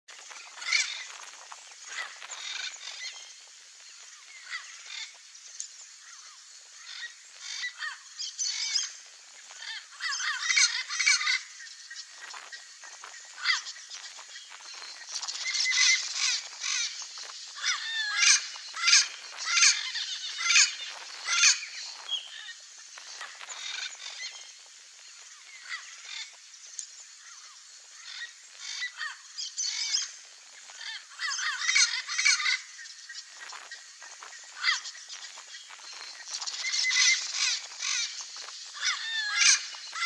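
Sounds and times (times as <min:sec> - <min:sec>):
parrot calling: 0:13.3 - 0:22.5, 0:38.8 - 0:40.0.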